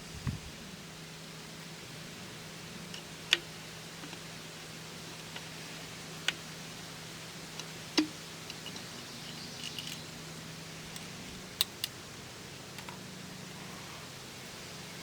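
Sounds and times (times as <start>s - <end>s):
clicks and knocks of small parts: 7.6s - 10.1s.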